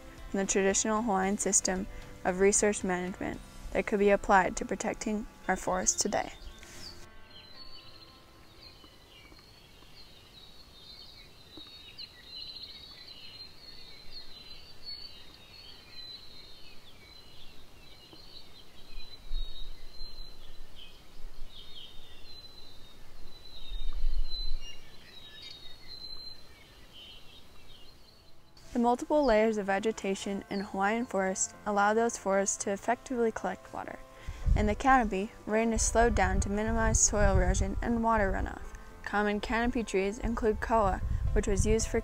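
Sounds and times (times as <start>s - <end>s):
forest birds chirping and trilling: 0.0s - 42.0s
low rumbles: 34.2s - 42.0s.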